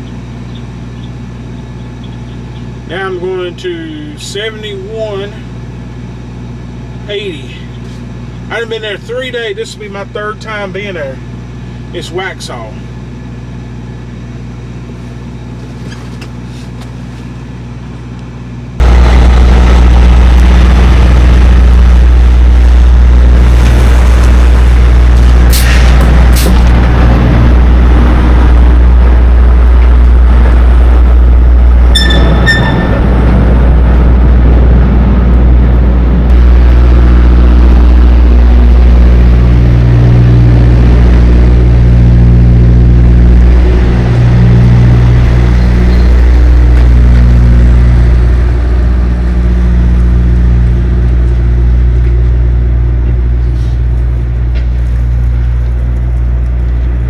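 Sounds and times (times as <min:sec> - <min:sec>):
diesel truck engine running: 0:00.0 - 0:57.0
high-pitched double tone: 0:28.0 - 0:34.6, 0:35.4 - 0:54.6.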